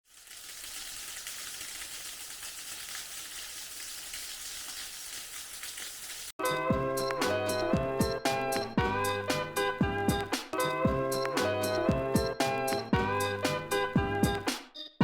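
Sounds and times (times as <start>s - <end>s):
guitar music: 6.4s - 14.5s.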